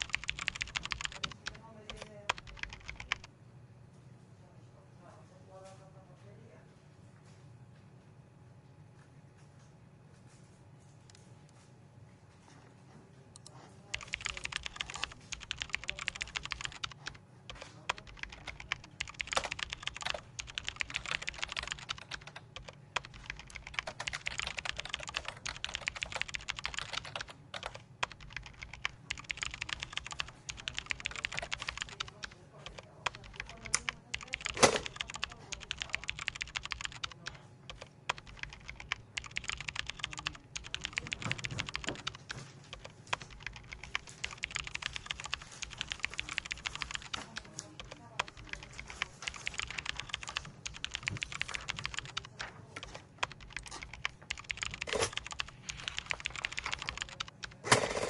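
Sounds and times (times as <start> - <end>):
computer keyboard typing: 0.0 - 3.3, 13.4 - 58.0
low room hum: 0.0 - 58.0.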